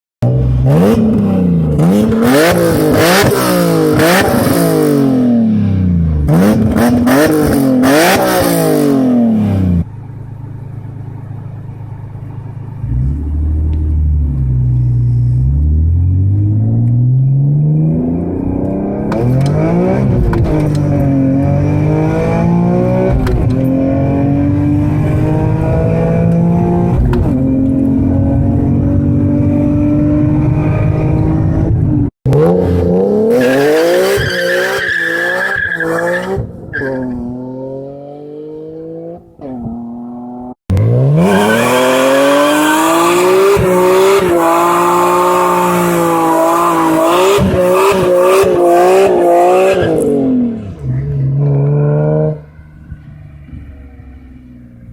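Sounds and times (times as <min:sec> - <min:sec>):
car engine revving: 0:00.2 - 0:09.9, 0:12.5 - 0:54.9
tyre squeal: 0:33.3 - 0:37.2.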